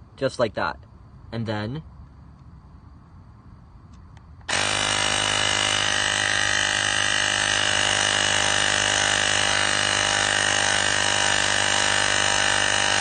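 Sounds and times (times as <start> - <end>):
tire inflator compressor buzzing: 4.4 - 13.0.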